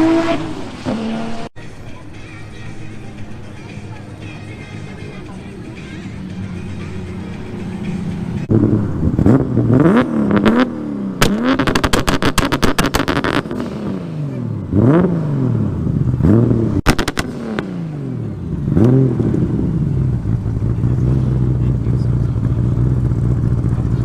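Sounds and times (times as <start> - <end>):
car engine revving: 0.0 - 1.6, 4.7 - 24.0
sharp popping: 9.3 - 13.9, 16.8 - 17.8.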